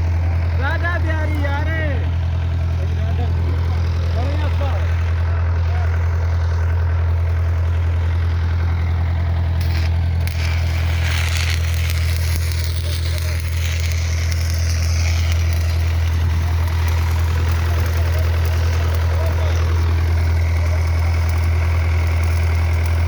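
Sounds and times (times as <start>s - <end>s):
welding machine humming: 0.0s - 23.0s
electric arc crackling: 5.8s - 23.0s.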